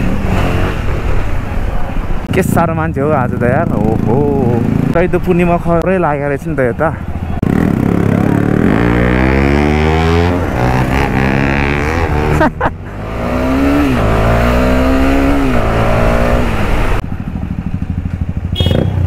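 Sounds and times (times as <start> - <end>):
motorcycle engine accelerating: 7.2 - 19.0.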